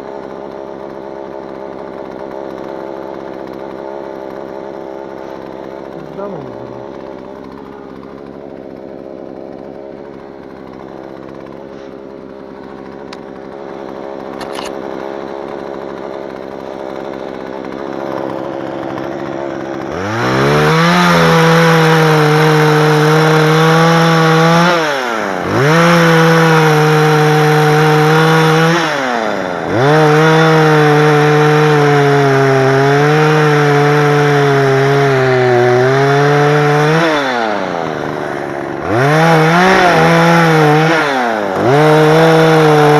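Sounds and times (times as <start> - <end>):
chainsaw engine revving: 0.0 - 42.9.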